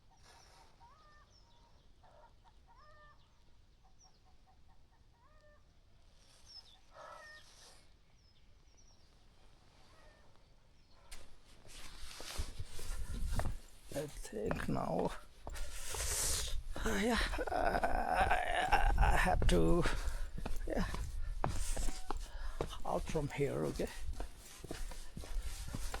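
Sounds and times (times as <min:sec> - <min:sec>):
faint bird chirps: 0:00.0 - 0:11.1
rustling noise: 0:11.1 - 0:26.0.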